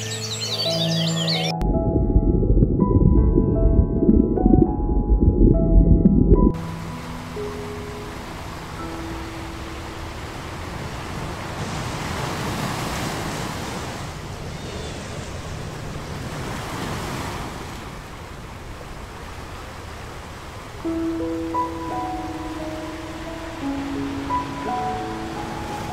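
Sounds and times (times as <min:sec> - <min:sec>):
rushing water like surf: 0:06.5 - 0:25.9.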